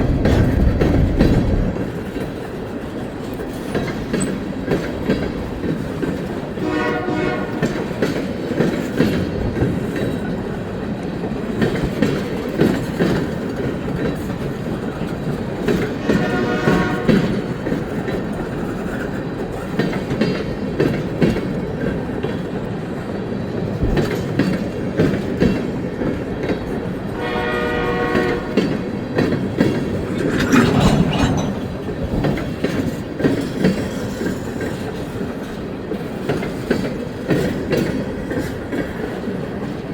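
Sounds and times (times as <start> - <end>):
train rumbling by: 0.0 - 39.9
wheels clacking over rail joints: 0.0 - 39.9
train horn: 6.6 - 8.0, 15.9 - 17.7, 27.1 - 28.9.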